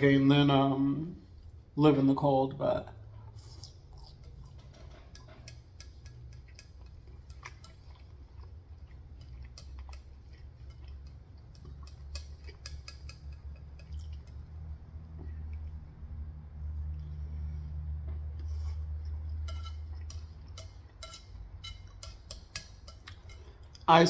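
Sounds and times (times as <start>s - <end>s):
low steady hum: 0.0s - 24.0s
crunchy chewing: 3.2s - 15.9s.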